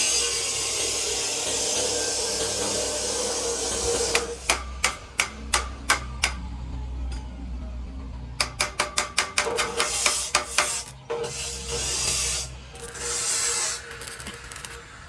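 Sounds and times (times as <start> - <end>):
hammer tapping: 4.1 - 6.4, 8.4 - 10.8.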